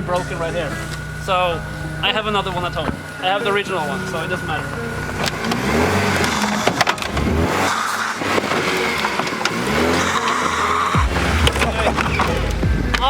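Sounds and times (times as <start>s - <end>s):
car engine revving: 0.0s - 13.0s
knocks and clunks: 4.8s - 13.0s.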